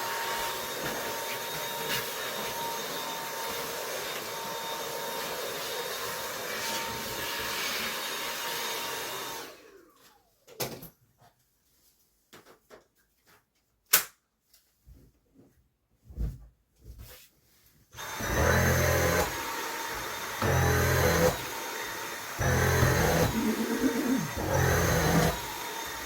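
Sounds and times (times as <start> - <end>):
vacuum cleaner whine: 0.0 - 10.3, 18.0 - 26.0.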